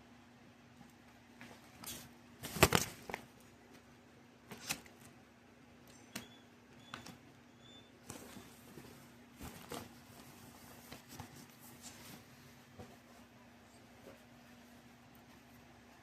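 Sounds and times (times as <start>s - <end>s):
record packaging rustling: 2.4s - 3.3s.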